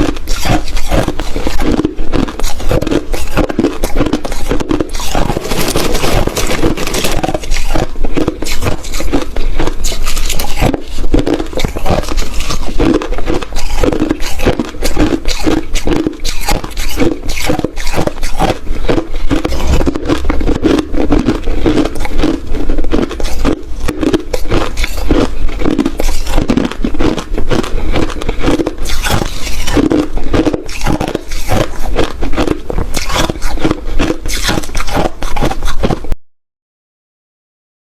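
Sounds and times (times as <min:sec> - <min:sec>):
ice being chewed: 0:00.0 - 0:36.2.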